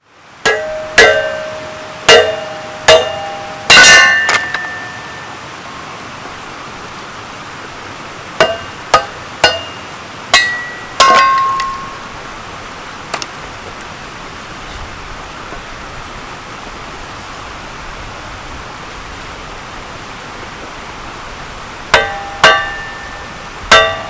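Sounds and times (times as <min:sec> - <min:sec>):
steady hiss: 0:00.0 - 0:24.0
hammer striking metal with ringing: 0:00.5 - 0:05.3, 0:08.4 - 0:12.0, 0:21.9 - 0:24.0.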